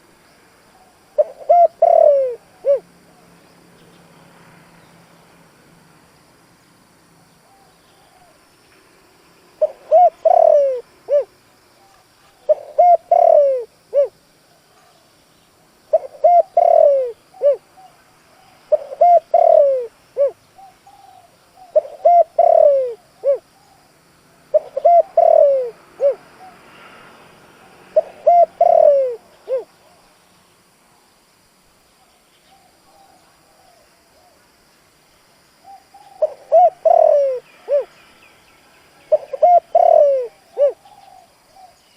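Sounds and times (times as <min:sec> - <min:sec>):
dove cooing: 0:00.7 - 0:02.9, 0:09.6 - 0:15.0, 0:15.9 - 0:23.9, 0:24.5 - 0:26.7, 0:27.6 - 0:30.0, 0:32.5 - 0:34.4, 0:35.6 - 0:38.0, 0:39.1 - 0:41.8.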